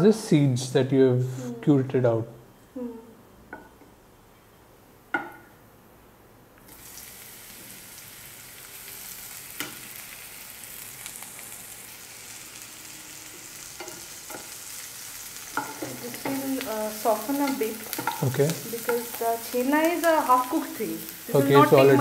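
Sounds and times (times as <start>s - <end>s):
cheese sizzling in hot oil: 6.6s - 22.0s
spatula stirring with light knocks: 15.5s - 16.4s, 17.5s - 19.1s
wooden spatula tapping pan: 17.4s - 19.1s.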